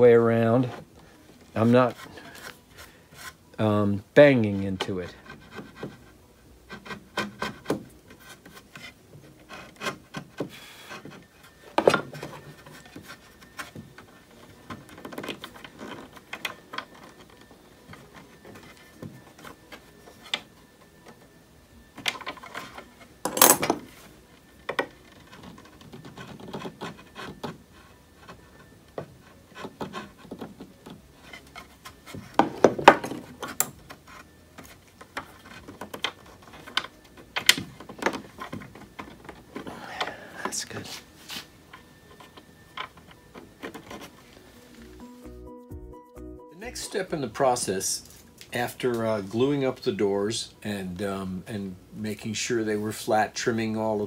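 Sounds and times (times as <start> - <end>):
chisel paring wood: 6.7 - 20.5, 24.6 - 40.2.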